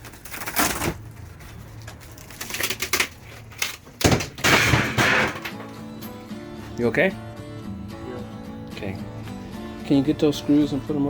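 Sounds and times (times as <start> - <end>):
wood cracking and crunching: 0.0 - 5.7.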